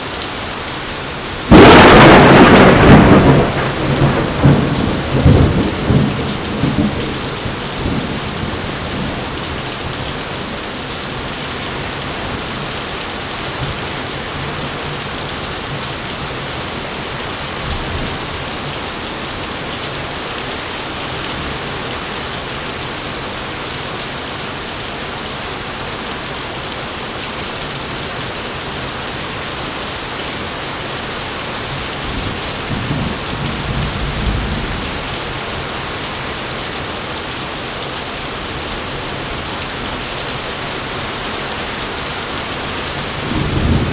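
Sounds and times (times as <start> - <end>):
heavy rain: 0.0 - 43.9
thunder rumbling: 1.4 - 10.0, 32.1 - 35.6, 43.0 - 43.9.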